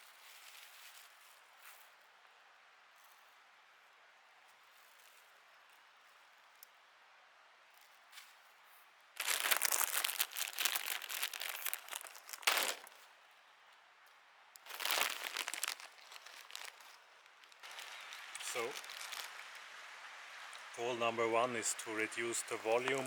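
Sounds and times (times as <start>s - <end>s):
plastic packaging crinkling: 9.2s - 13.0s, 14.6s - 19.6s.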